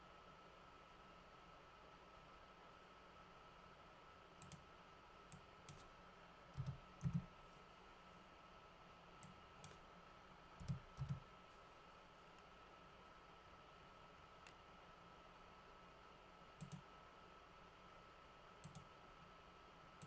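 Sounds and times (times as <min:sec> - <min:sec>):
faint steady hum: 0:00.0 - 0:20.0
computer mouse clicks: 0:04.4 - 0:04.7, 0:05.3 - 0:05.9, 0:06.5 - 0:07.3, 0:09.2 - 0:09.8, 0:10.6 - 0:11.3, 0:16.6 - 0:16.9, 0:18.6 - 0:19.0
keyboard keystrokes: 0:06.6 - 0:07.3, 0:10.6 - 0:11.2.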